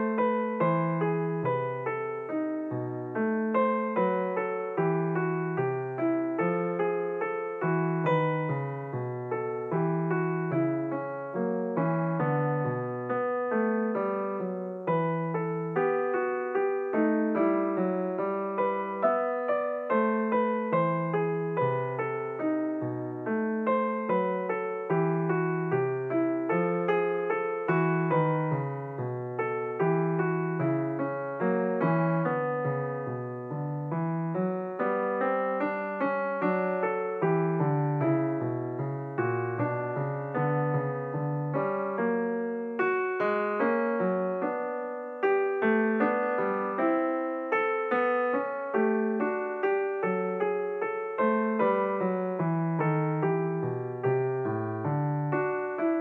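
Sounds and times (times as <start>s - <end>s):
piano music: 0.0s - 56.0s.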